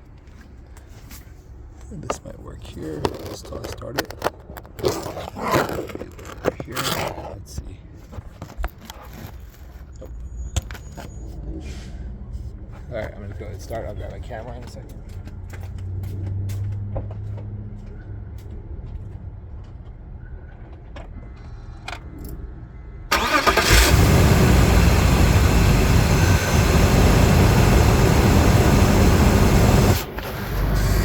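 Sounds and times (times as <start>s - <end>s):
air pump running: 23.1s - 31.0s
car engine cranking and starting: 23.1s - 31.0s.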